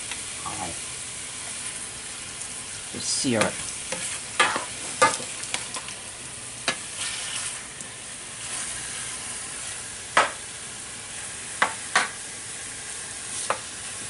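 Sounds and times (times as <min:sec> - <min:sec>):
meat sizzling in a pan: 0:00.0 - 0:14.0.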